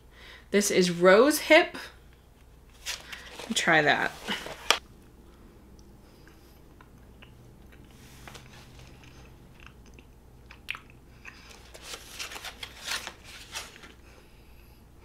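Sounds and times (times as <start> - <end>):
person chewing with mouth clicks: 5.8 - 11.6.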